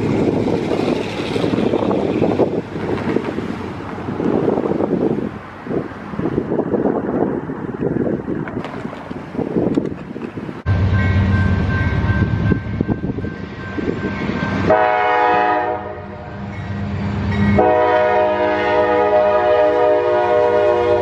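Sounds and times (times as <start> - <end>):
diesel locomotive rumbling: 0.0 - 21.0
train air horn blasts: 14.6 - 16.4, 17.5 - 21.0.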